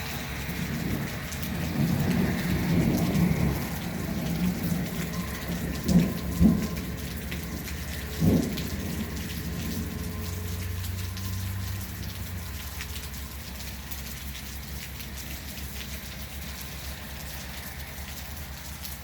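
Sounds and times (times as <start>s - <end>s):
thunder rumbling: 0.0s - 12.6s
steady rain: 0.0s - 19.0s.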